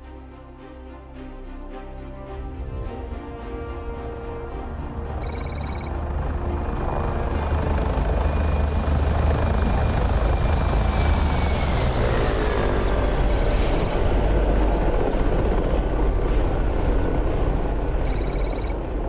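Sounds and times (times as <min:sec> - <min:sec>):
helicopter flying past: 0:05.3 - 0:19.0.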